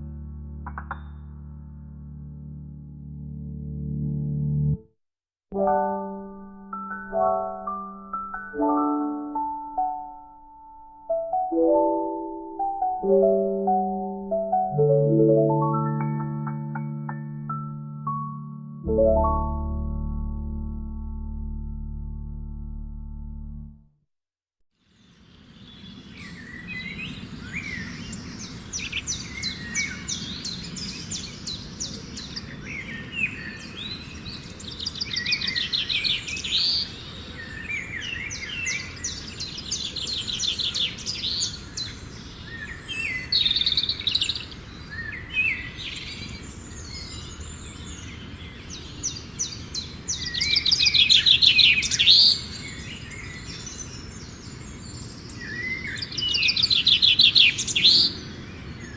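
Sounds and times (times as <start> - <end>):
birds singing and trilling: 25.0 - 58.9.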